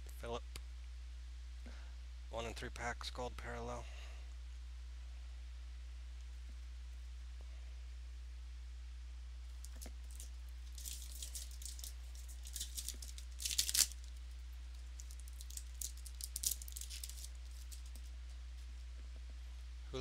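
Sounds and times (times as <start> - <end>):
steady low hum: 0.0 - 20.0
foil wrapper crinkling: 9.6 - 18.7.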